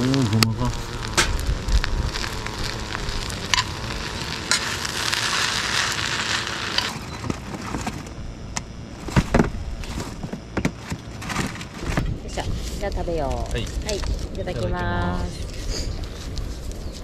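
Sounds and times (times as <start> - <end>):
fried rice sizzling in a skillet: 0.0 - 7.1.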